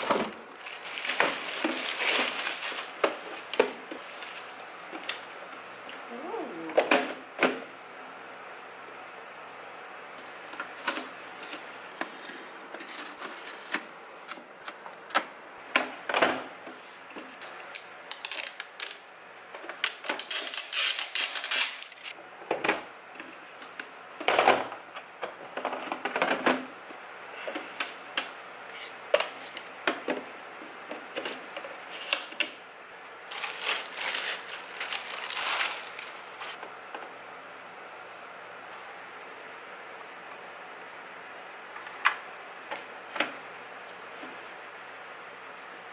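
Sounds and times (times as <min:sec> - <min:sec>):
crinkly rustling: 0:00.0 - 0:05.6, 0:33.3 - 0:36.6.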